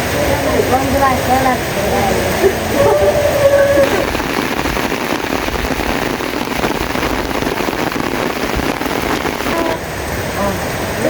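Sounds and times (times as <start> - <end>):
heavy rain falling: 3.8 - 9.8.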